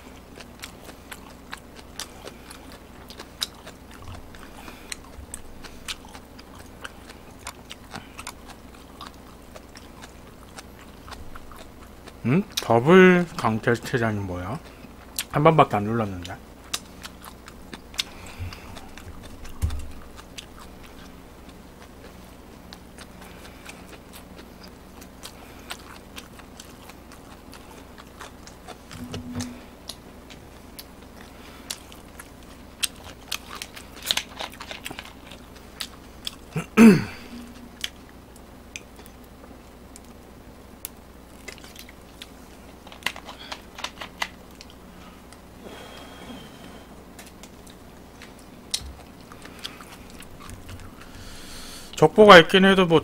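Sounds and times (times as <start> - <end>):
chewing with wet mouth clicks: 0.1 - 12.7, 16.2 - 29.0, 29.8 - 36.5, 37.7 - 40.2, 40.8 - 45.4, 47.1 - 51.1
brief sound falling in pitch: 29.0 - 29.8.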